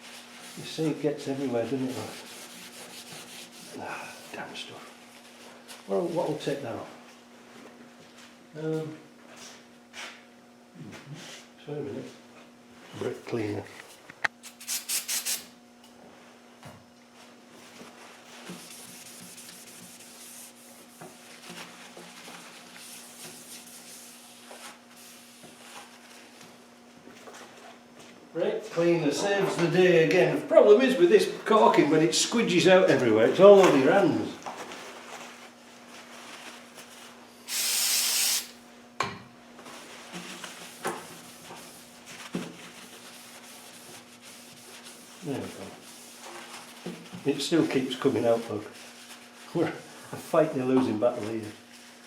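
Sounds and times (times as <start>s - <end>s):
scratchy rubbing and scrubbing: 0.0s - 4.3s, 18.3s - 25.2s, 40.2s - 46.9s
spray can hissing: 14.4s - 15.5s, 37.5s - 38.6s.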